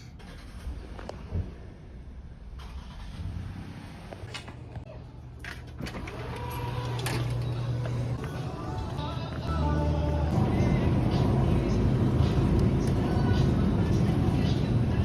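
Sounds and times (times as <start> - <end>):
car engine and road hum: 6.1 - 15.0.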